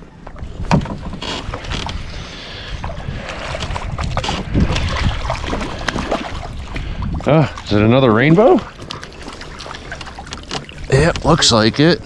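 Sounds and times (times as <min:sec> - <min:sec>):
wind rumble on microphone: 0:00.0 - 0:08.7
fishing gear clicks and knocks: 0:00.2 - 0:02.1, 0:08.7 - 0:11.6.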